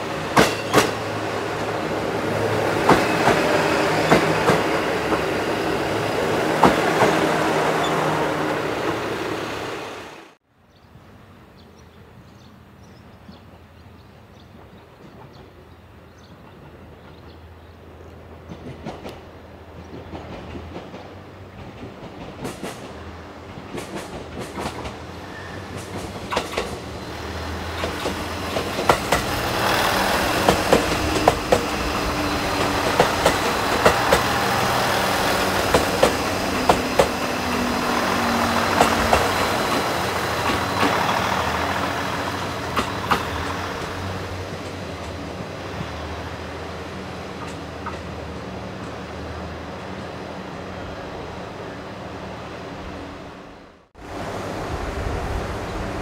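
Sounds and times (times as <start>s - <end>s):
wheels clicking over rail joints: 0.0s - 8.1s, 18.0s - 45.9s
diesel train passing: 0.0s - 10.4s, 11.1s - 56.0s.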